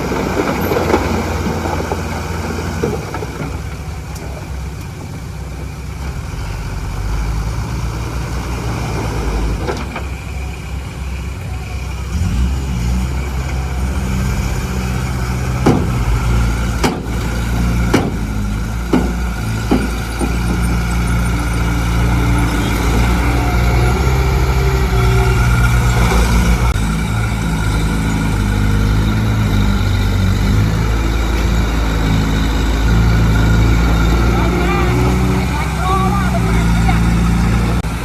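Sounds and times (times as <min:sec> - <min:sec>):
diesel engine running: 0:00.0 - 0:38.0
sharp knocks: 0:15.6 - 0:21.2.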